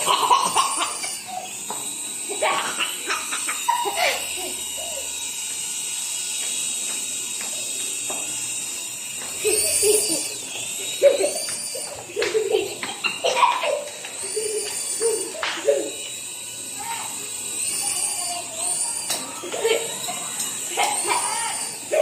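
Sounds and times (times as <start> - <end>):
child laughing: 0.0 - 1.7, 2.3 - 5.2, 9.4 - 16.1, 17.8 - 22.0
voices: 0.0 - 5.4, 9.1 - 22.0
toy helicopter motor whining: 0.0 - 22.0.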